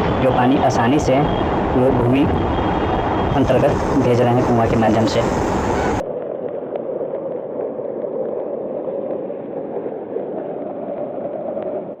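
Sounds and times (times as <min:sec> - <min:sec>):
water pouring and gurgling: 0:05.5 - 0:12.0.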